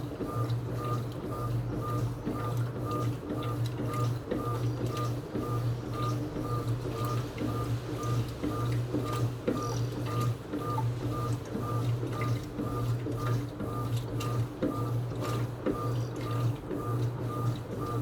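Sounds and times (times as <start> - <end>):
washing machine motor hum: 0.0 - 18.0.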